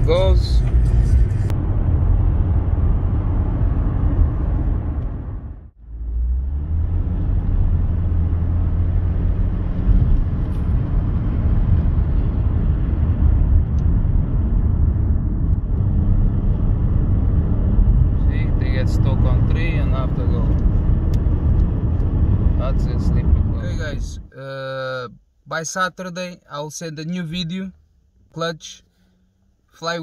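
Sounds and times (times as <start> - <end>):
diesel engine drone: 0.0 - 24.3
road rumble: 0.0 - 24.4.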